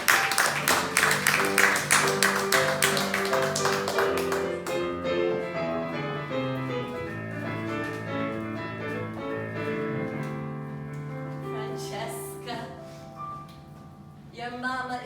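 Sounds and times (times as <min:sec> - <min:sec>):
audience applause: 0:00.0 - 0:04.9
piano playing held chords: 0:00.0 - 0:14.4.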